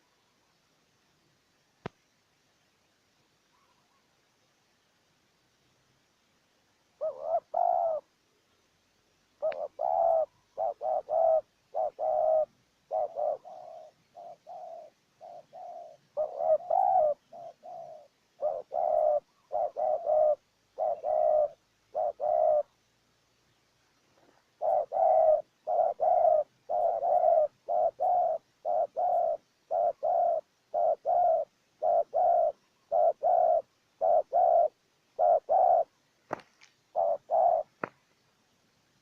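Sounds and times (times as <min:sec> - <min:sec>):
dove cooing: 0:06.9 - 0:08.2, 0:09.4 - 0:22.8, 0:24.1 - 0:38.0.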